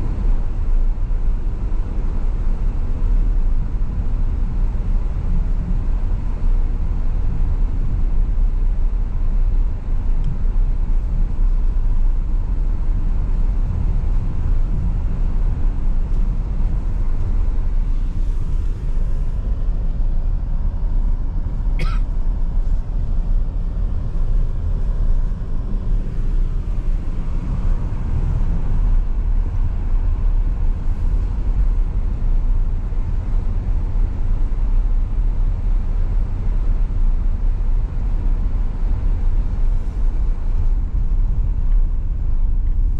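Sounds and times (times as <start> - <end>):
car driving road noise: 0.0 - 42.9.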